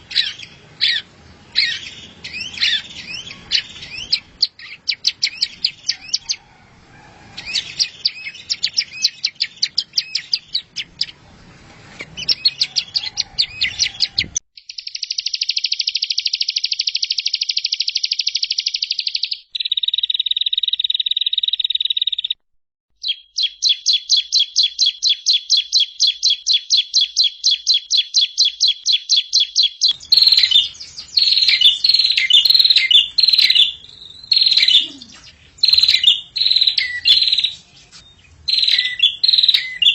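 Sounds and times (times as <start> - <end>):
songbird chirping: 0.0 - 22.4, 23.0 - 39.9
fast buzzy bird trill: 23.0 - 39.9
quick bird notes: 29.8 - 39.9
steady shrill bird note: 29.9 - 39.9.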